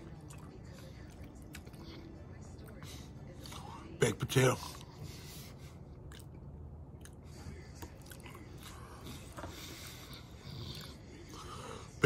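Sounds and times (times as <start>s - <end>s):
person chewing food: 0.0s - 3.8s, 5.8s - 11.6s.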